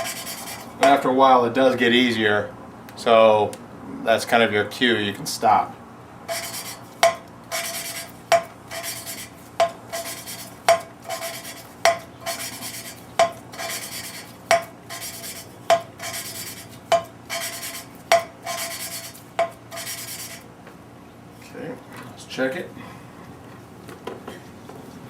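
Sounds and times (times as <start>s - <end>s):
gritty rasp of valve grinding: 0.0s - 1.0s, 6.3s - 20.5s.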